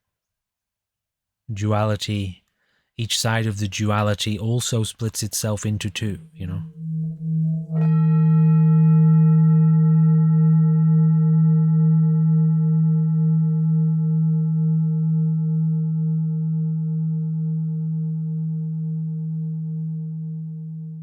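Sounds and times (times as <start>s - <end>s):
singing bowl ringing: 6.6s - 21.0s.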